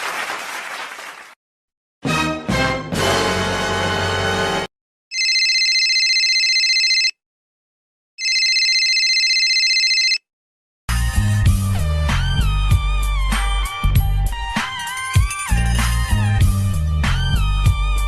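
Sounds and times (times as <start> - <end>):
music: 2.0 - 4.7, 10.9 - 18.0
electronic telephone ringing: 5.1 - 7.2, 8.2 - 10.2.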